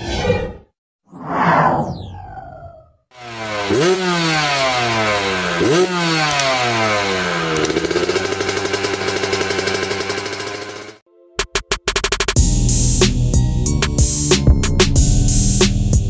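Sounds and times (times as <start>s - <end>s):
motocross bike engine revving: 3.2s - 11.0s.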